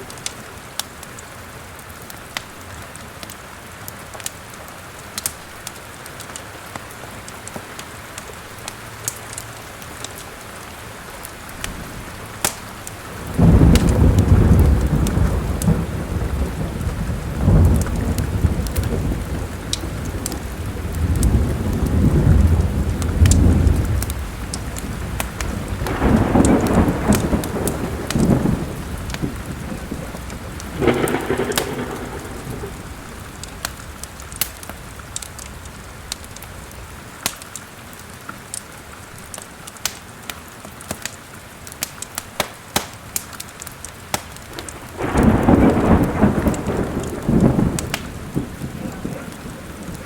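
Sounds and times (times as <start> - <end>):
fireplace fire crackling: 0.0 - 50.0
steady rain: 0.0 - 50.0
thunder rumbling: 11.6 - 37.0, 44.1 - 50.0.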